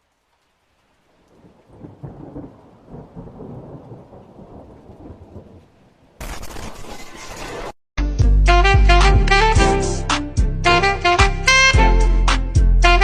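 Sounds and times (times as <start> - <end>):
rain: 0.0 - 7.7
thunder rumbling: 1.1 - 7.4.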